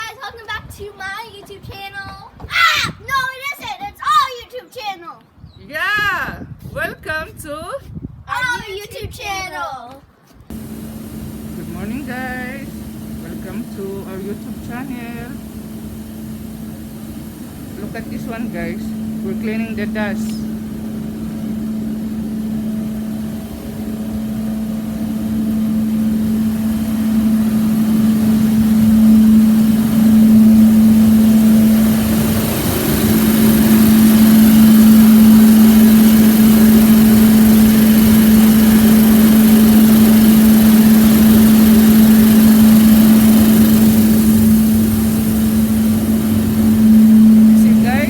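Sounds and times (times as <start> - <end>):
vacuum machine motor hum: 10.5 - 48.0.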